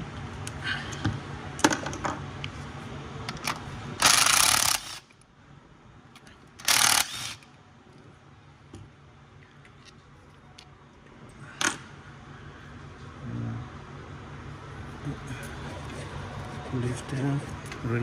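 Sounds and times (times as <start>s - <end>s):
fast ratcheting: 4.0s - 5.1s, 6.6s - 7.4s.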